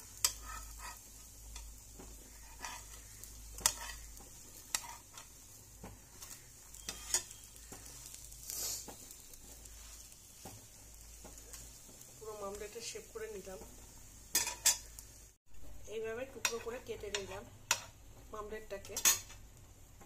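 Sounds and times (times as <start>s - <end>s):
metal spatula scraping pan: 0.0s - 10.6s, 14.3s - 15.0s
omelette sizzling in pan: 0.0s - 20.0s.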